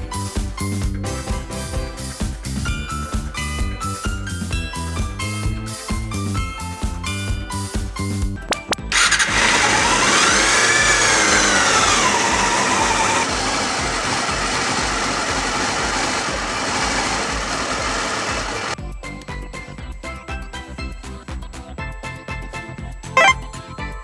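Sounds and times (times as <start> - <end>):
motorcycle engine revving: 9.0 - 18.8.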